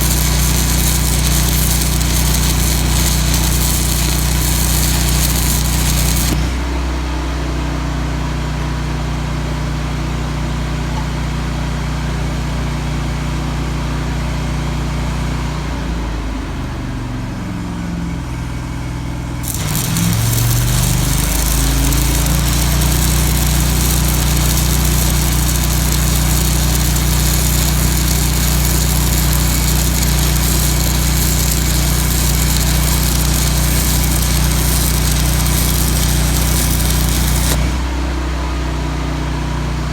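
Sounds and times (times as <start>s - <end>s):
welding arc crackling hiss: 0.0s - 6.6s, 19.4s - 38.0s
welder engine running: 0.0s - 6.9s, 19.4s - 38.4s.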